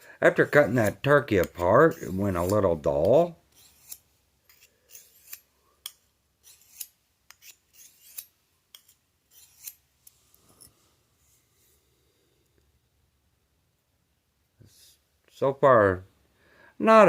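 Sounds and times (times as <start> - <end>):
knife scraping on sharpener: 0.4 - 9.9.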